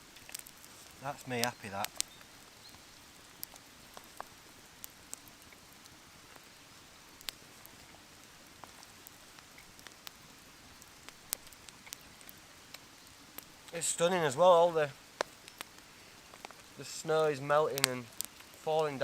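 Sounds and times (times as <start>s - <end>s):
faint steady hiss: 0.0s - 19.0s
water dripping from trees: 0.0s - 19.0s.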